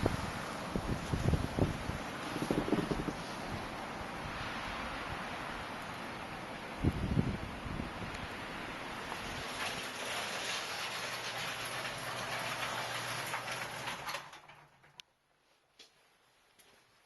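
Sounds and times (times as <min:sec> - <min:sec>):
rushing wind: 0:00.0 - 0:10.4.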